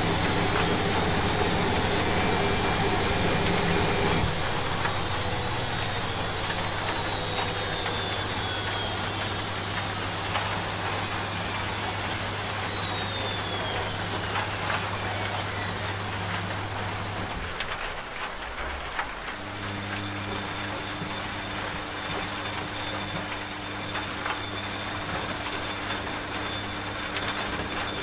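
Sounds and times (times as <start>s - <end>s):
low hum: 0.0s - 15.7s
washing machine spinning down: 0.0s - 28.0s
rain pattering: 14.4s - 28.0s.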